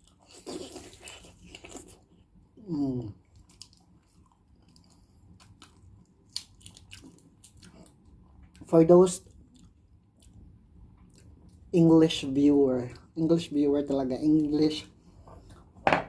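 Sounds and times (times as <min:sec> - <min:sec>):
person chewing with wet smacks: 0:00.0 - 0:02.4, 0:03.1 - 0:11.7.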